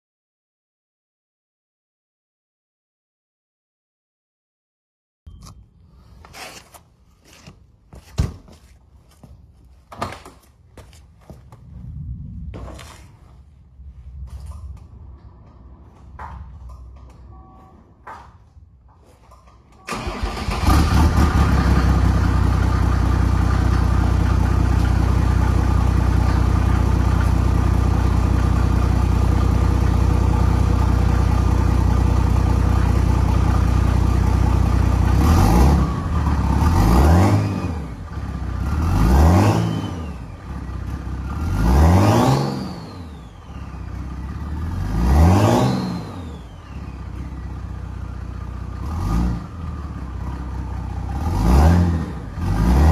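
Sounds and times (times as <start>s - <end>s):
diesel engine idling and revving: 19.9s - 52.9s.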